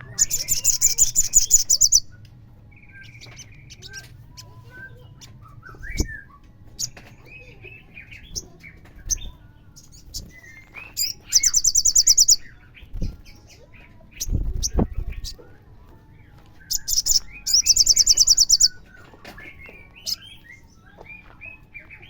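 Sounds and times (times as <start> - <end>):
bird chirps and whistles: 2.9 - 7.0, 10.2 - 12.5, 16.6 - 18.8.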